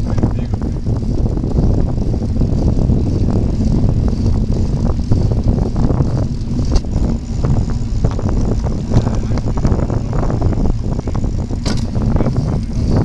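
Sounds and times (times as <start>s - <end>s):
bicycle knocks and rattles: 0.0s - 13.0s
wind and tyre rumble: 0.0s - 13.0s.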